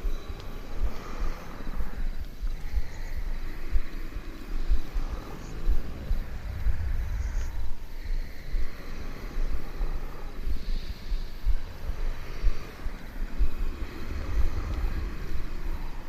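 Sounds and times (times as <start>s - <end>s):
cats purring: 0.0s - 16.0s
sleep breathing and light snoring: 0.0s - 16.0s.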